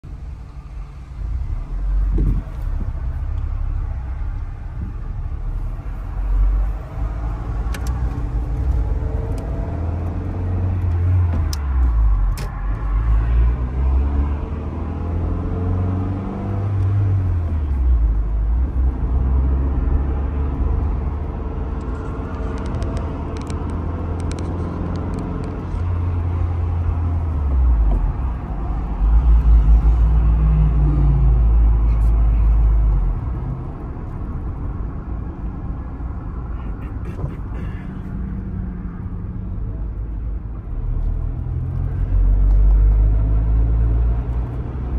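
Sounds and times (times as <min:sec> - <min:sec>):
road rumble: 0:00.0 - 0:44.9
car engine revving: 0:05.1 - 0:34.5.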